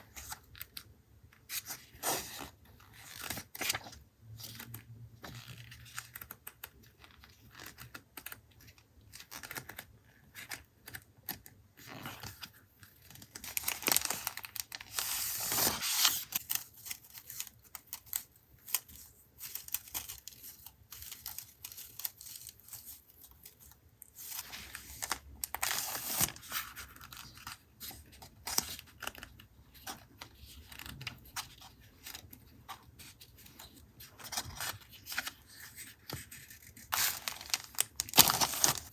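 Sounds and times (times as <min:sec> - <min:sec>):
paper crinkling and tearing: 0:13.1 - 0:29.2, 0:33.6 - 0:38.9.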